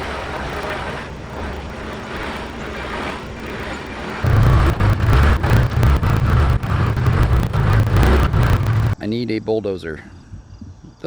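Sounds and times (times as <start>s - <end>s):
diesel engine running: 4.2s - 9.0s.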